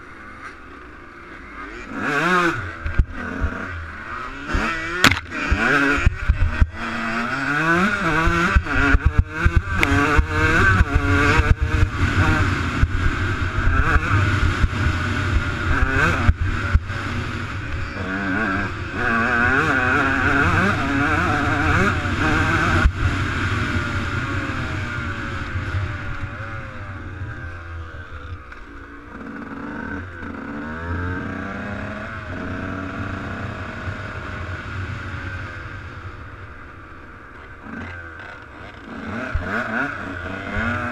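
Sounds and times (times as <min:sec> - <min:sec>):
motocross bike engine revving: 0:00.0 - 0:40.9
sharp knocks: 0:05.0 - 0:05.6.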